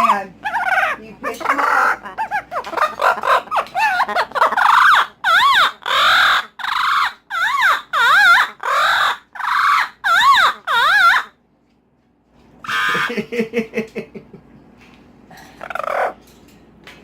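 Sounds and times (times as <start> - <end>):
parrot screeching: 0.0 - 11.4, 12.6 - 13.1, 15.6 - 16.2.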